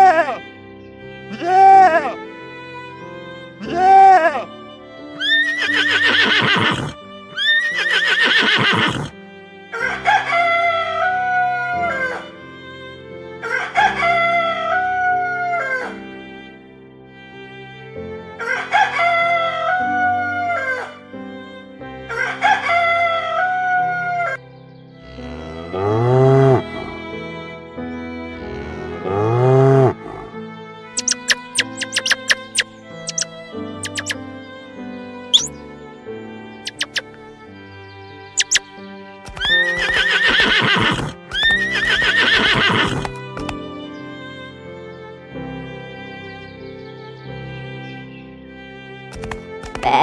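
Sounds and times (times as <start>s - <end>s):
soft background music: 0.0s - 49.9s
rooster crowing: 5.2s - 9.1s, 9.8s - 12.3s, 13.4s - 16.0s, 18.4s - 21.0s, 22.1s - 24.4s, 39.3s - 43.5s.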